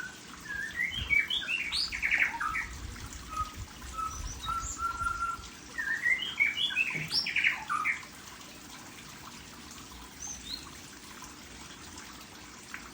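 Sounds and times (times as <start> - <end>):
songbirds chirping and singing: 0.5 - 8.1.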